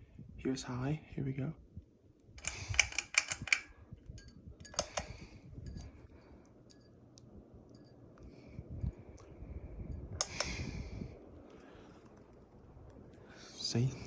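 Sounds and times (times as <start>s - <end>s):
ceiling fan humming: 0.0s - 14.0s
sharp clicks and rattles: 2.4s - 6.0s.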